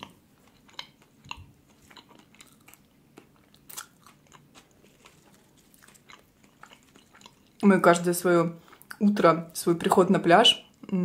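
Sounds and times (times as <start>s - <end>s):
crisp chewing crunches: 0.0s - 7.6s.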